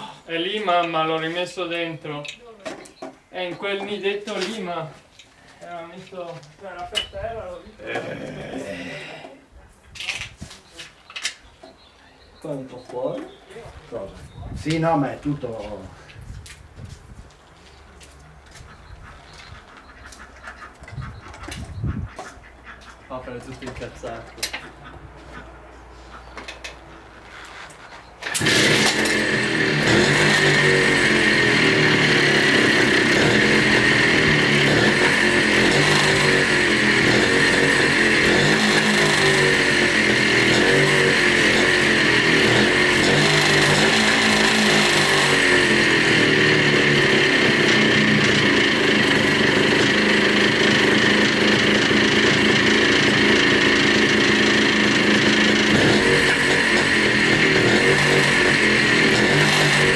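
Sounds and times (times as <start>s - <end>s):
two-stroke motorcycle engine running: 28.2s - 59.9s.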